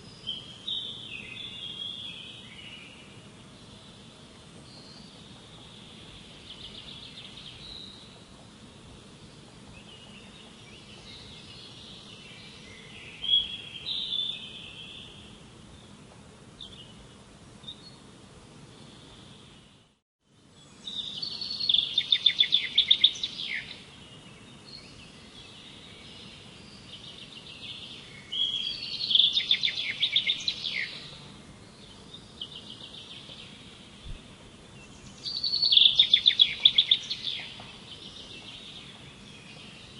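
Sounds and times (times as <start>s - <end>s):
steady background hiss: 0.0s - 39.9s
songbird trilling: 20.9s - 23.8s, 25.5s - 31.2s, 34.9s - 39.9s.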